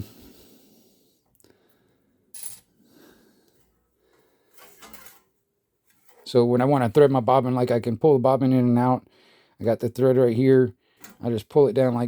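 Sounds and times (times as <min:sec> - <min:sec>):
metallic clicks and scrapes: 0:04.5 - 0:06.3.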